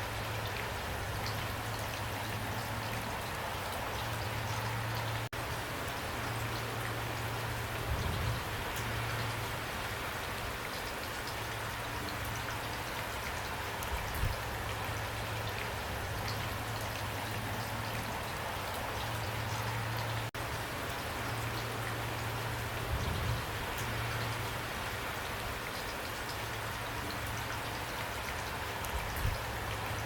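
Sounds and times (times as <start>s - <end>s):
pouring rain: 0.0s - 30.0s
raindrops ticking: 23.6s - 30.0s.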